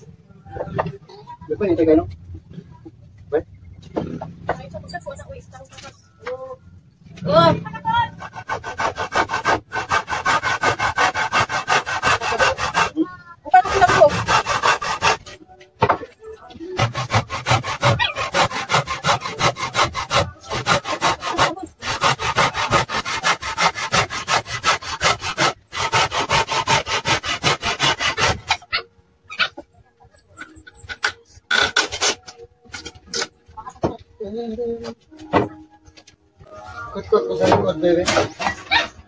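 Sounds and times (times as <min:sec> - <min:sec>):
hand saw cutting wood: 0:07.8 - 0:16.0, 0:16.6 - 0:28.8, 0:30.4 - 0:33.8, 0:37.4 - 0:39.0.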